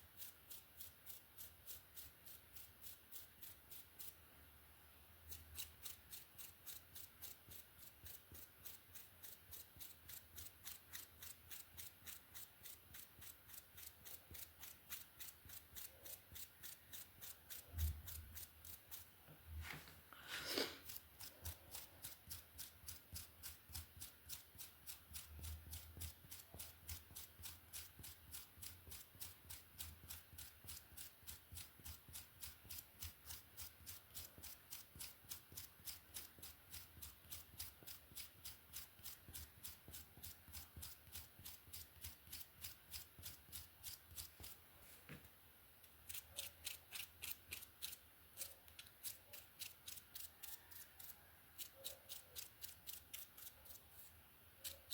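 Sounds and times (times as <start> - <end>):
hairbrush strokes through hair: 5.3 - 22.7, 33.0 - 45.3, 46.1 - 54.9.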